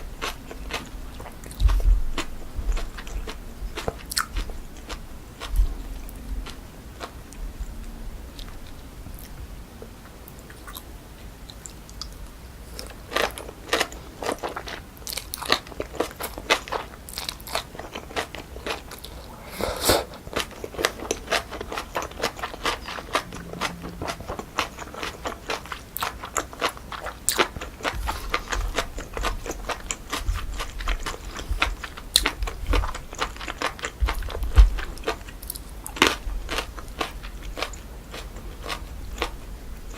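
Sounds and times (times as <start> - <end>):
chewing and crunching food: 0.0 - 19.4, 20.0 - 39.9.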